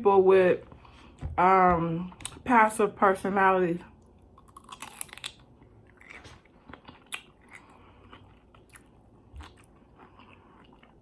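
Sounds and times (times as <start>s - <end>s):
person chewing crunchy food: 4.1s - 11.0s.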